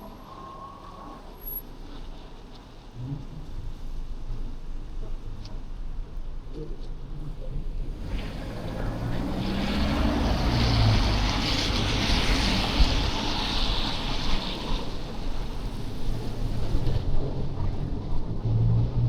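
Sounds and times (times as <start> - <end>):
low engine hum: 1.7 - 19.0
tyre hiss on wet slush: 8.0 - 17.0.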